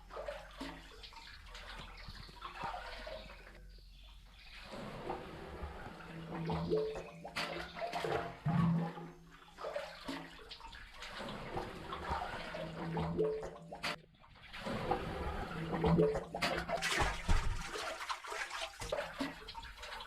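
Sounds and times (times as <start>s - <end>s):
water running and splashing: 0.0s - 3.6s, 9.4s - 20.0s.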